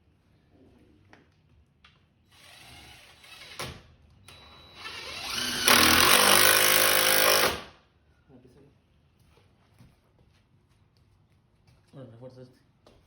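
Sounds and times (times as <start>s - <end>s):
power drill running: 2.3s - 3.7s, 4.3s - 7.7s.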